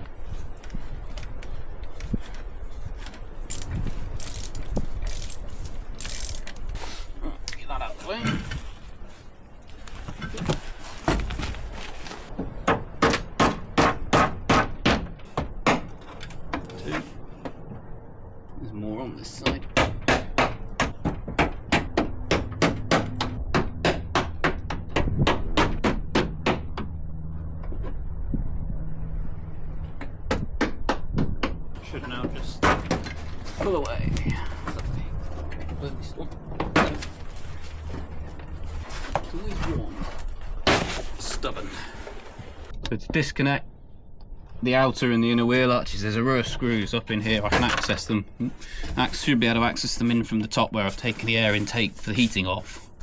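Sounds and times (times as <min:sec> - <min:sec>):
rustling scrapes: 0:00.1 - 0:07.2, 0:08.0 - 0:12.4, 0:33.0 - 0:36.1, 0:36.9 - 0:42.7, 0:50.8 - 0:53.0.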